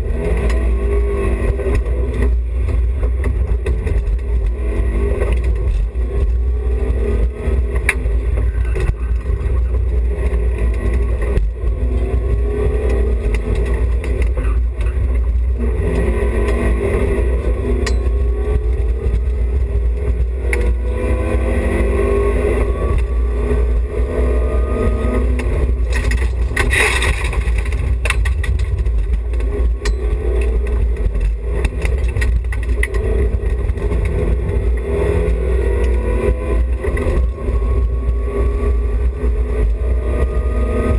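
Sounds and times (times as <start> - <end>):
car engine revving: 0.0 - 40.9
heavy rumble: 0.0 - 40.9.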